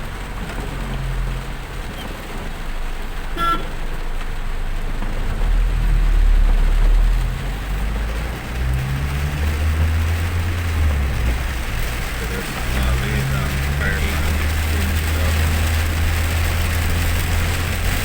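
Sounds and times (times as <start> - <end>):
tyres hissing on wet road: 0.0 - 18.0
vehicle engine and road rumble: 0.0 - 18.0
short horn toot: 3.4 - 3.8.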